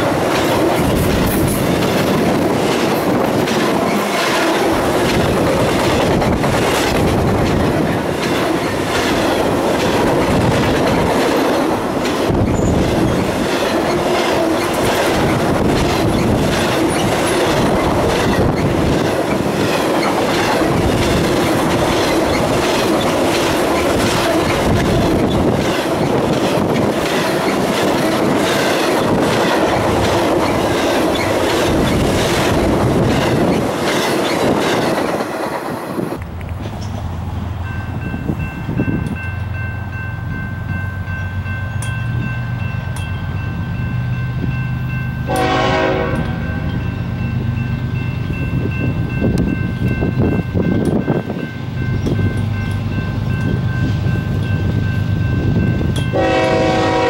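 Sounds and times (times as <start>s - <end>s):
wheels clicking over rail joints: 0.0s - 39.9s
steel wheels rolling on rail: 0.0s - 57.0s.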